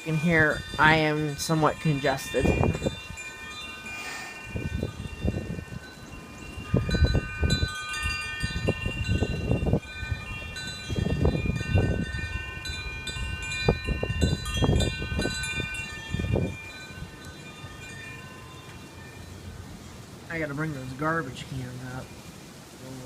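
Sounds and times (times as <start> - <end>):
wind chimes ringing: 0.0 - 22.4
wind buffeting microphone: 0.0 - 23.0.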